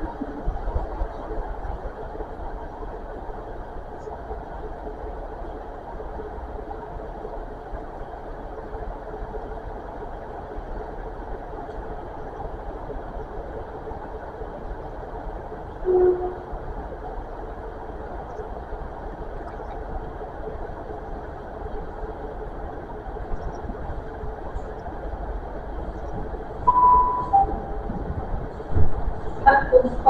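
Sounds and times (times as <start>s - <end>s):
short loud beep: 26.7s - 27.8s.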